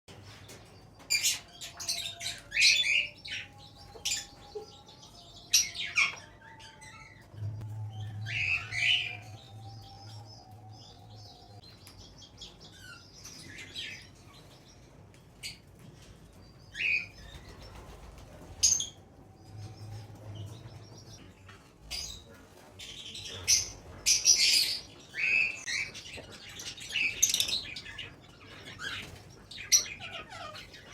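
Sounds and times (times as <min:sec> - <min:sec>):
parrot chick chirping and squawking: 0:23.1 - 0:30.9.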